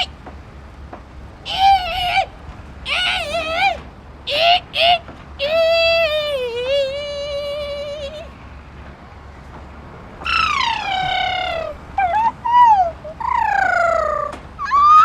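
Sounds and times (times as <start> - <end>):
person imitating bird calls: 0.0 - 0.2, 1.4 - 8.4, 10.2 - 15.0.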